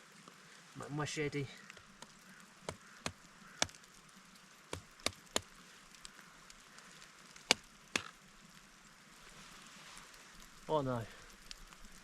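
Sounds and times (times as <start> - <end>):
machete chopping wood: 7.5 - 8.1.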